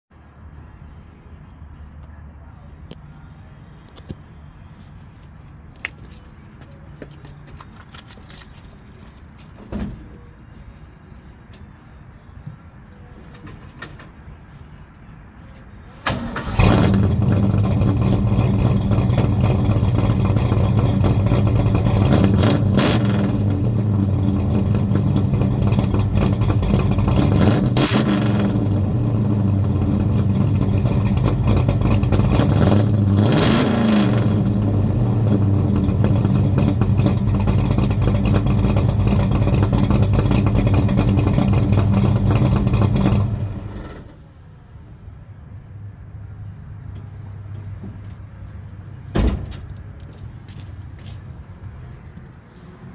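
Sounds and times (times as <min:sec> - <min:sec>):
car engine starting and idling: 0:15.7 - 0:44.4
engine revving: 0:16.1 - 0:44.1.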